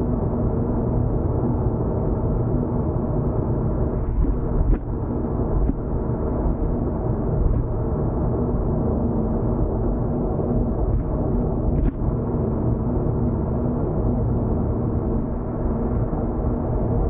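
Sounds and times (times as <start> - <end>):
faint steady hum: 0.0 - 17.0
car cabin driving rumble: 3.9 - 7.9, 10.7 - 12.2.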